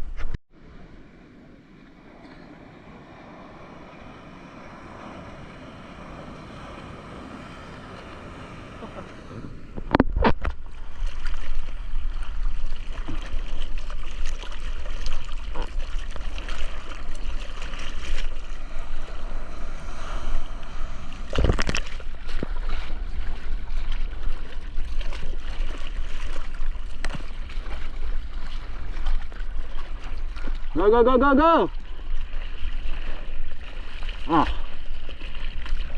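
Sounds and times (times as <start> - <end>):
seawater splashing and sloshing: 1.8 - 35.9.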